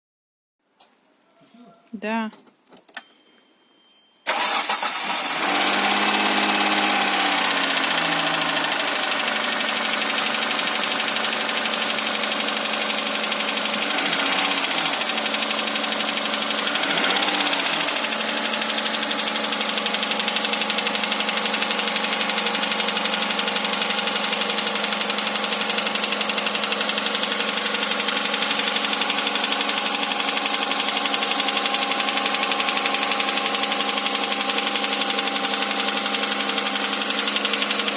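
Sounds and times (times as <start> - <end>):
car engine idling: 4.3 - 37.9
engine knocking: 5.7 - 37.9.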